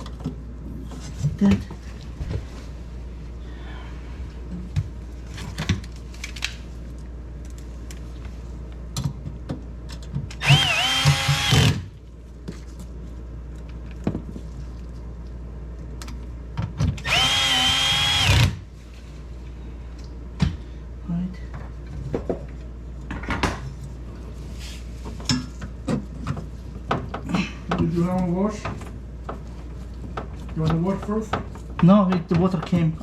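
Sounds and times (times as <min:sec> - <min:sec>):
power drill whining: 0:10.4 - 0:11.8, 0:17.0 - 0:18.6.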